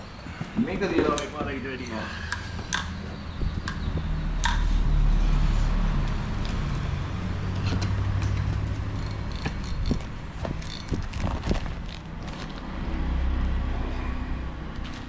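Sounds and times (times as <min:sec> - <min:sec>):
vehicle engine rumble: 0:00.0 - 0:15.0
sharp clicks: 0:02.3 - 0:04.7.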